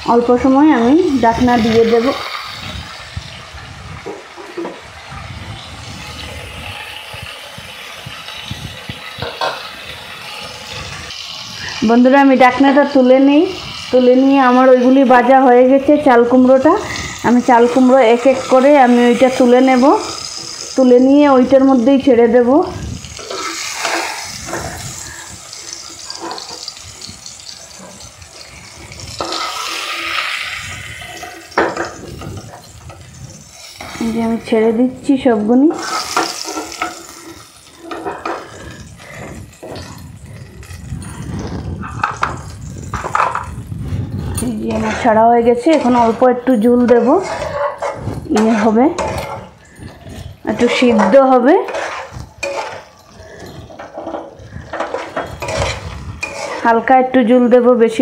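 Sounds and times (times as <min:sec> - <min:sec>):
vegetables sizzling in oil: 0:00.0 - 0:58.0
metal spatula knocking pans: 0:42.0 - 0:43.5, 0:44.6 - 0:49.6, 0:50.5 - 0:53.0, 0:53.6 - 0:56.9
metal spatula and lid clinks: 0:54.8 - 0:56.6.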